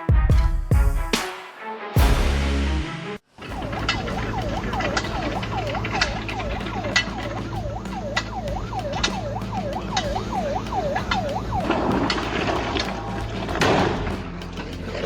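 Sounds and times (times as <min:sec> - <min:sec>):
siren yelping: 0:03.5 - 0:12.6.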